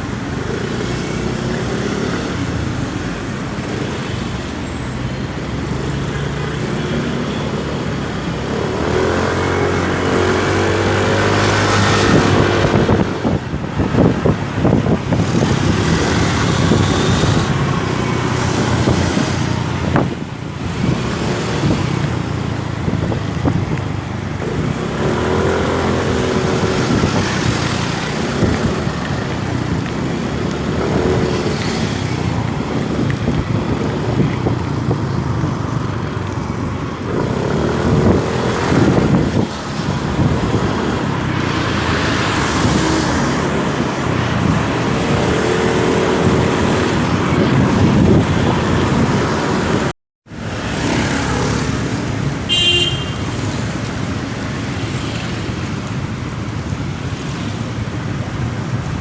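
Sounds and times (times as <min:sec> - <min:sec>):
road noise: 0:00.0 - 0:59.0
motorcycle engine accelerating: 0:08.4 - 0:23.8, 0:24.4 - 0:49.9.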